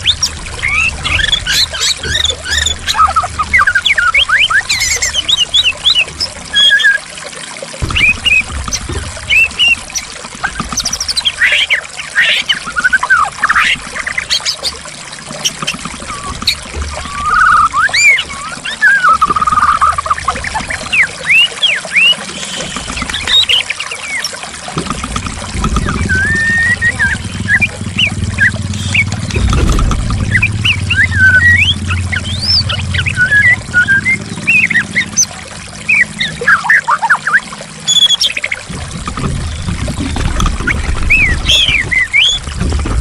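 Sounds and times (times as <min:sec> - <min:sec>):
bird singing whistles and trills: 0:00.0 - 0:07.1, 0:07.8 - 0:14.8, 0:15.4 - 0:24.4, 0:25.9 - 0:29.5, 0:30.2 - 0:38.6, 0:40.9 - 0:42.4
trickling pouring water: 0:00.0 - 0:43.0
deep low rumble: 0:25.3 - 0:35.0.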